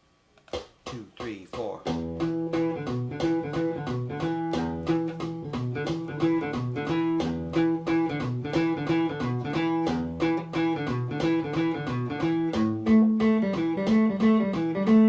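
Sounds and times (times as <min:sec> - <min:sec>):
guitar playing fast riff: 0:01.9 - 0:15.0.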